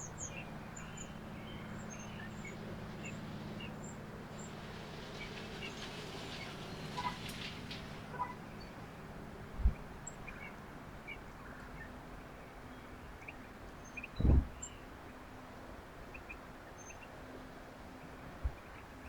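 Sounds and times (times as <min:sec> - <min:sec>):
small birds chirping: 0:00.0 - 0:09.0
dull low thumps: 0:14.2 - 0:14.6.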